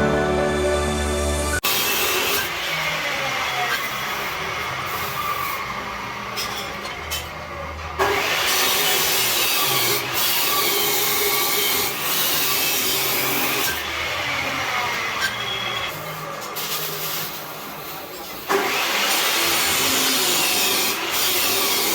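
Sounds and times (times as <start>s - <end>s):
power tool rasping on metal: 16.6s - 21.9s.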